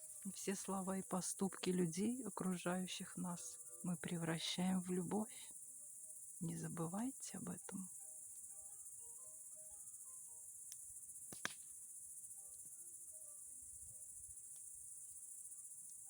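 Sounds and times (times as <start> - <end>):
crickets chirring: 0.0 - 16.0
faint music: 0.0 - 16.0
sharp crack: 11.3 - 11.7.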